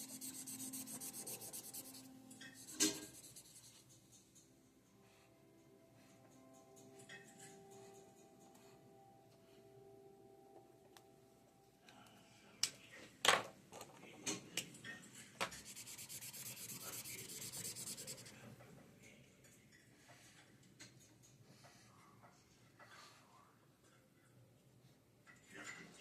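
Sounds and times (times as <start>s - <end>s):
fast rubbing on paper: 0.0s - 3.8s, 15.6s - 18.4s.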